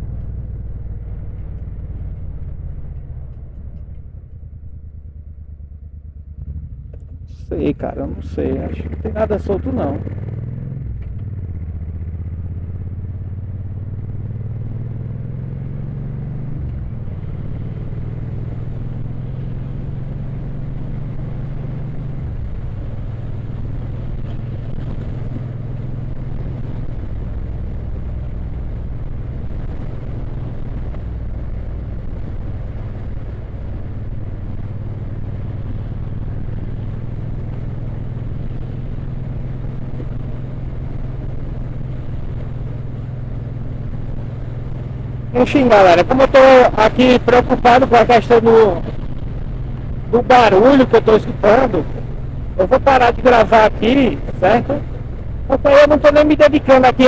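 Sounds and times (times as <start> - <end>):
motorcycle engine running: 0.0 - 57.0
steady noise haze: 7.2 - 10.2, 22.0 - 57.0.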